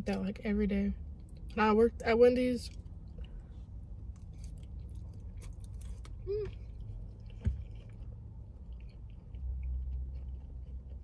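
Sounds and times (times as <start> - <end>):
person chewing food: 2.7 - 11.0
person humming mm: 6.2 - 6.5.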